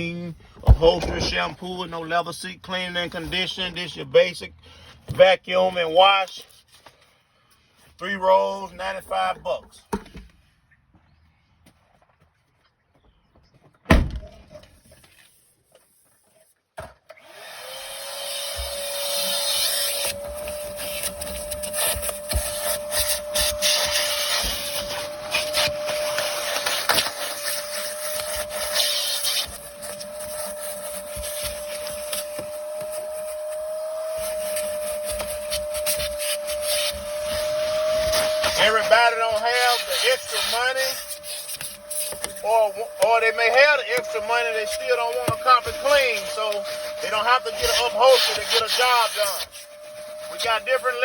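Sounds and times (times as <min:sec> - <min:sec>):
vacuum nozzle scraping upholstery: 0:00.6 - 0:01.5, 0:17.4 - 0:51.0
vacuum cleaner running: 0:17.1 - 0:51.0.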